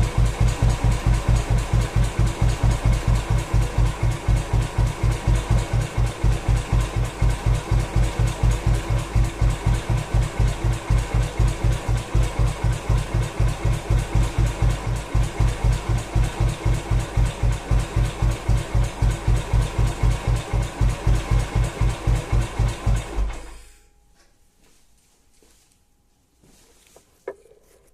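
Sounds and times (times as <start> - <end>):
single-cylinder engine idling: 0.0 - 23.6.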